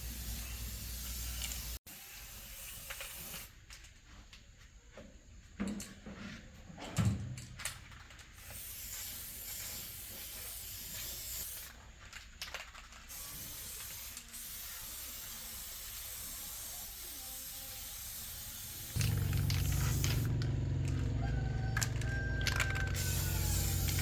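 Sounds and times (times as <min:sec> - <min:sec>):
spraying hiss: 0:08.4 - 0:11.7, 0:13.1 - 0:20.7, 0:22.9 - 0:24.0.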